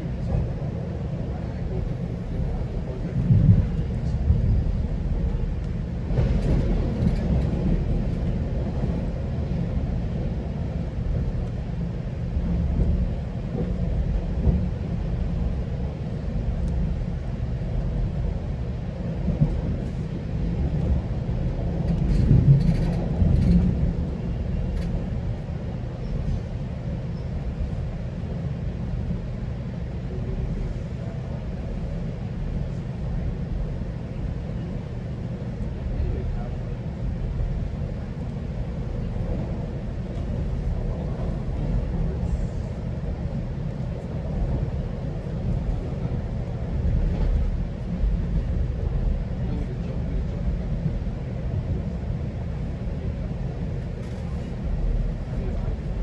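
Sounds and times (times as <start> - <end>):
train rumbling: 0.0 - 56.0
train clattering: 1.6 - 9.7, 19.2 - 27.8.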